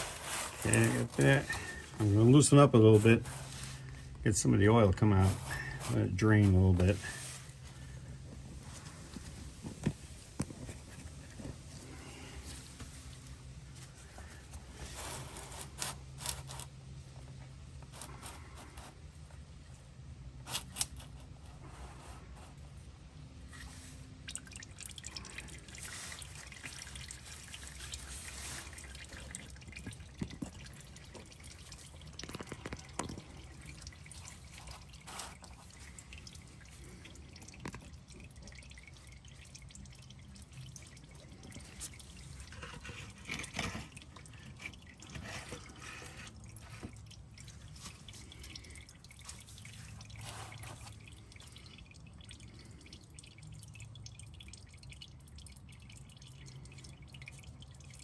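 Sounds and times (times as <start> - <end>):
oil dripping into a drain pan: 22.9 - 58.0.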